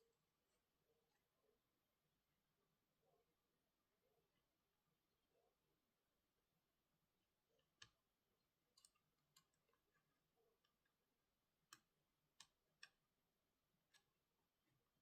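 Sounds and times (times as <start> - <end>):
faint clicks and taps of tools: 7.6 - 15.0.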